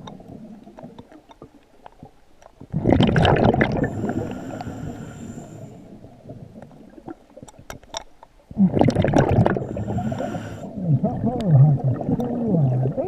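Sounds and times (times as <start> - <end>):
underwater bubbles burbling: 0.0 - 7.8, 8.5 - 13.0
regulator hiss: 3.8 - 5.8, 9.6 - 10.7.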